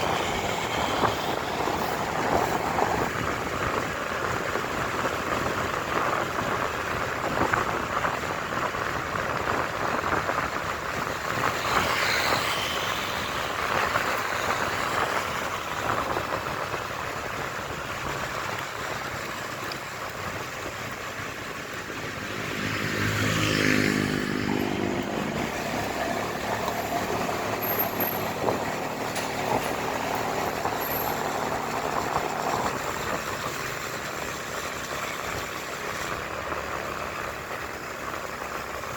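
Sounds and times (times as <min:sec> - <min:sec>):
wind and road noise: 0:00.0 - 0:38.9
motorcycle engine: 0:10.8 - 0:38.9
vehicle passing close by: 0:21.7 - 0:37.4.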